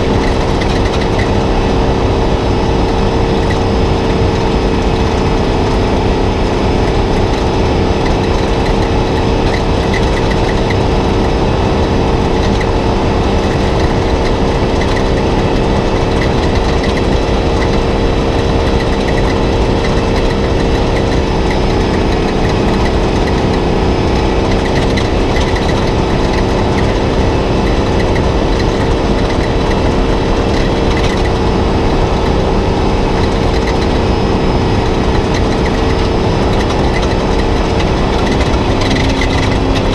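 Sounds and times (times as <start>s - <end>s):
constant low rumble: 0.0s - 39.9s
truck engine running: 0.0s - 39.9s.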